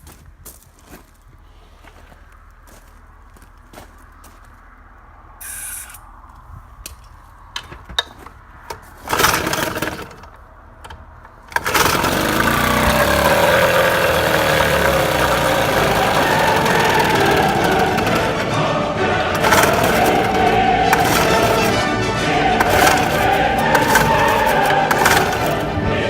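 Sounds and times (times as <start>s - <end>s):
outboard engine pull-start burst: 9.0s - 10.4s, 11.4s - 25.8s
outboard engine running: 11.5s - 18.6s, 19.3s - 21.9s, 22.6s - 25.8s.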